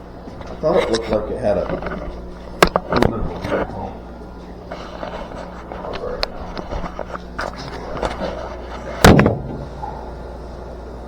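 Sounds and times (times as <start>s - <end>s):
steady low hum: 0.0s - 11.0s
loud bang: 9.0s - 9.9s.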